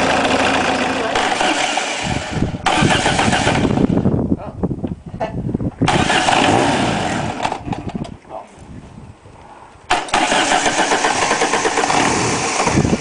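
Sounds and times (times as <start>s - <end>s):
diesel engine starting: 0.0s - 4.1s, 5.8s - 7.9s, 9.9s - 13.0s.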